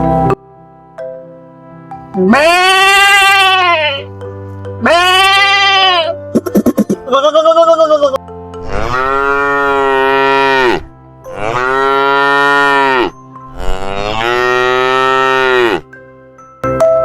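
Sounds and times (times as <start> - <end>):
cow mooing: 2.2 - 4.1, 4.8 - 6.2, 7.0 - 15.9.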